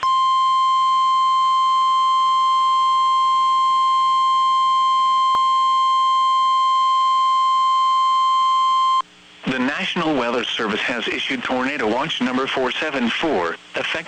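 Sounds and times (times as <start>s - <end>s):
steady alarm tone: 0.0s - 9.0s.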